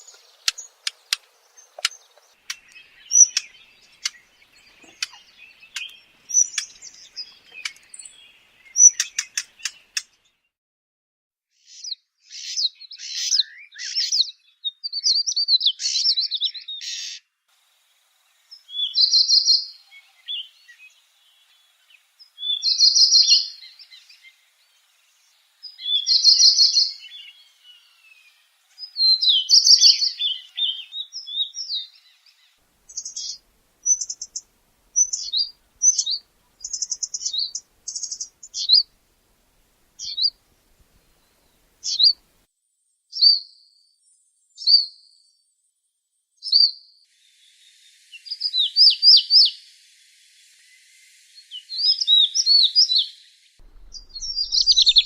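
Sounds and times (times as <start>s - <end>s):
bird chirps: 0.0s - 10.4s, 18.4s - 39.0s, 40.0s - 42.2s, 51.4s - 55.0s
bird song warbling: 0.0s - 10.4s, 18.4s - 42.3s, 51.4s - 55.0s.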